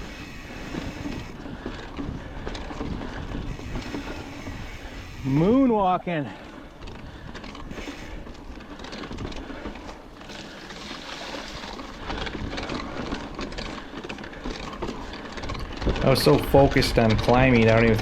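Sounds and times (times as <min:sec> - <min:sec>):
wind on camera: 0:00.0 - 0:05.5, 0:06.6 - 0:09.7, 0:14.5 - 0:18.0
bike drivetrain clicking and grinding: 0:00.0 - 0:18.0
bike tyres rolling on rock: 0:00.0 - 0:18.0.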